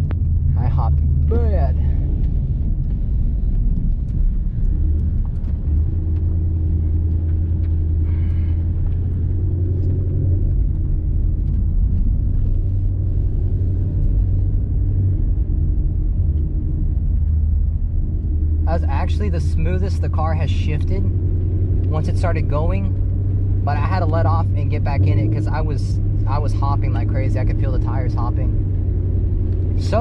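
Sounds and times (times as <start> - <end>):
car engine deep rumble: 0.0 - 30.0.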